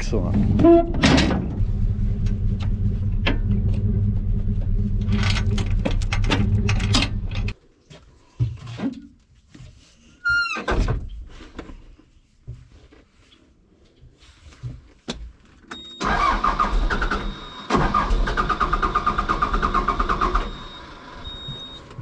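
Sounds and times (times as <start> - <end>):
vehicle engine idling: 0.0 - 7.5
knocks and clicks: 5.0 - 7.6.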